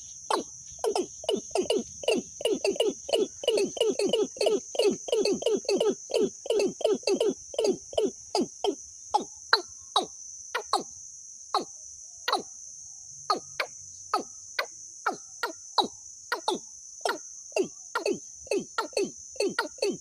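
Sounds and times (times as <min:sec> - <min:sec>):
high insect-like trill: 0:00.0 - 0:20.0.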